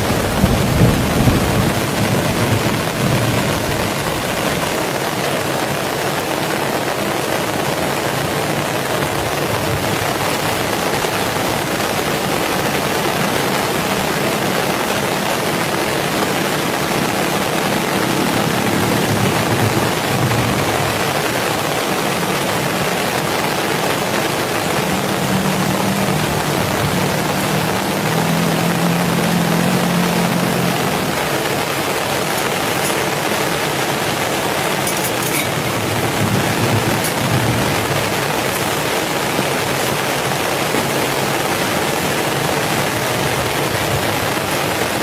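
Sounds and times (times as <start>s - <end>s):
heavy rain falling: 0.0s - 45.0s
low rumble: 24.6s - 31.6s.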